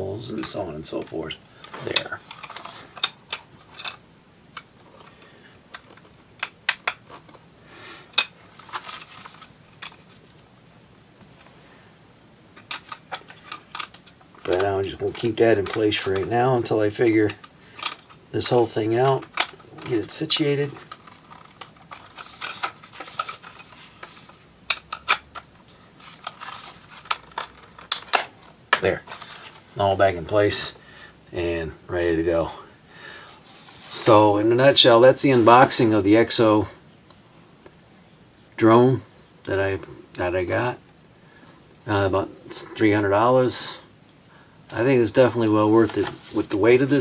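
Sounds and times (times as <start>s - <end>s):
soft rustle: 12.6s - 24.5s, 25.5s - 30.1s, 33.2s - 35.9s, 44.7s - 47.0s.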